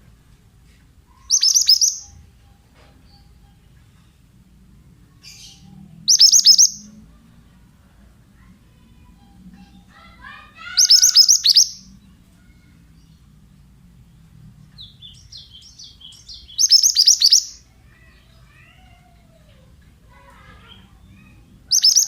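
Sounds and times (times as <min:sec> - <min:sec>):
bird singing: 0:01.1 - 0:04.2, 0:05.2 - 0:07.0, 0:08.7 - 0:13.4, 0:14.7 - 0:18.8, 0:20.4 - 0:22.0
bird chattering notes: 0:01.2 - 0:02.2, 0:06.1 - 0:06.9, 0:09.6 - 0:11.8, 0:14.8 - 0:17.6, 0:20.7 - 0:22.0.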